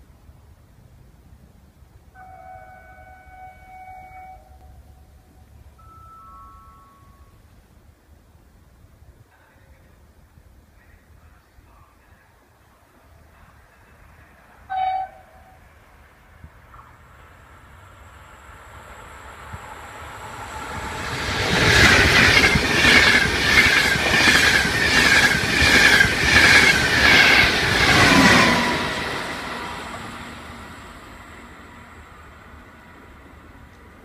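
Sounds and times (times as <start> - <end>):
high-speed train passing: 12.1 - 34.0
wheels beating on rails: 16.7 - 30.2.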